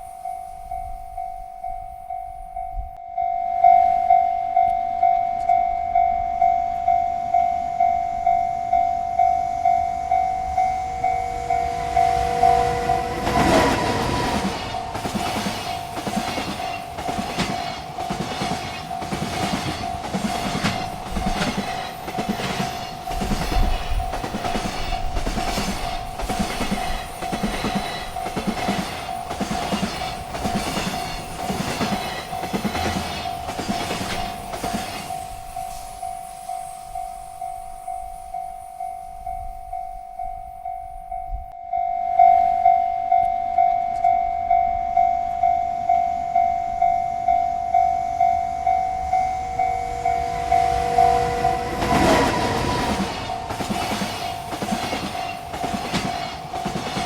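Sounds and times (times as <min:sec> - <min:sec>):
railroad crossing bell ringing: 0:00.0 - 0:57.0.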